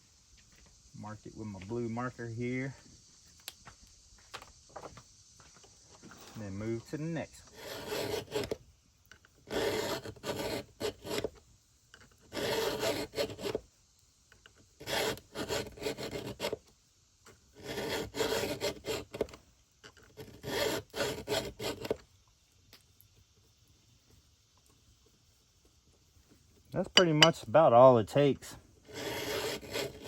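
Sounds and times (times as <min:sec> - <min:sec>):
file rasping on chainsaw chain: 0:07.4 - 0:08.6, 0:09.4 - 0:11.4, 0:12.2 - 0:13.6, 0:14.8 - 0:16.6, 0:17.6 - 0:19.4, 0:20.1 - 0:22.0, 0:28.8 - 0:30.0.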